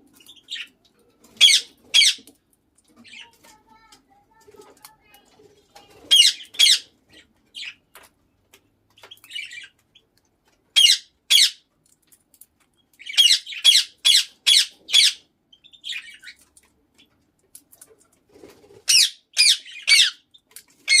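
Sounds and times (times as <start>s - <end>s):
parakeet squawking shrilly: 1.4s - 2.2s, 6.1s - 6.9s, 10.8s - 11.6s, 13.1s - 15.2s, 18.9s - 20.2s
soft parakeet chattering: 3.0s - 7.8s, 13.0s - 16.4s.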